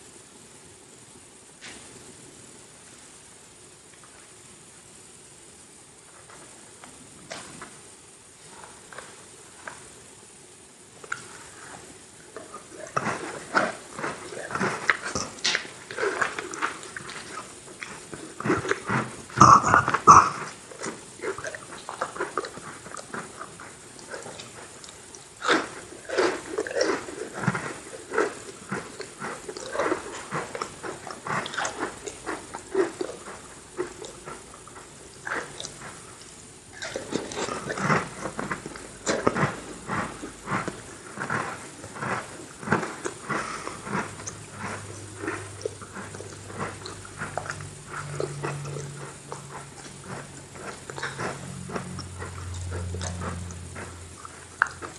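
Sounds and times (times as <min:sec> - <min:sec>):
low steady hum: 0:00.0 - 0:54.9
crunchy cookie chewing: 0:10.8 - 0:54.9
mouth clicks: 0:12.4 - 0:54.9.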